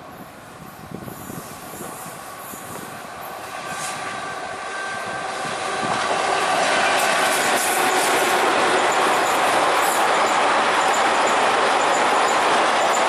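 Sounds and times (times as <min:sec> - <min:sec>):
train rumble and rail noise: 0:00.0 - 0:13.0
thin high whine: 0:06.9 - 0:13.0.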